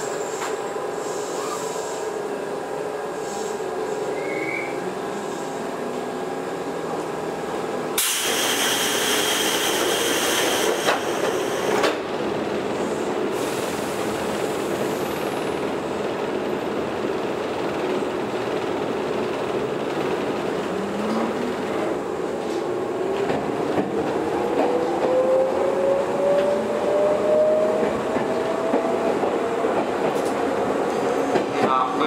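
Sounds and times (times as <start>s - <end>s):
train wheels rumbling: 8.0s - 32.0s.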